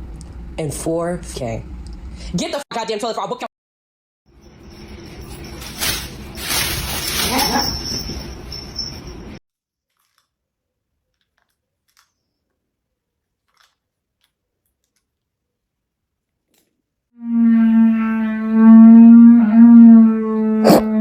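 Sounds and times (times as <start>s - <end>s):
pet howling: 6.6s - 9.0s.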